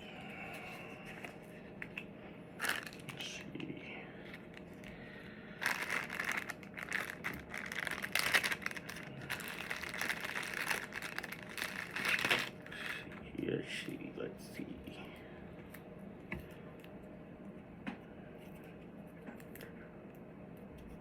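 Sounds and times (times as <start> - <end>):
packaging crinkling: 2.6 - 3.5, 4.3 - 13.1
velcro peeling: 5.6 - 12.6.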